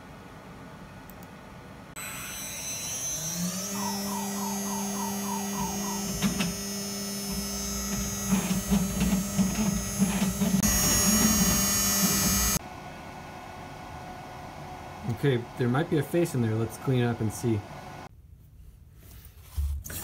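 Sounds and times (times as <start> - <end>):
router spindle humming and whining: 2.0 - 12.6.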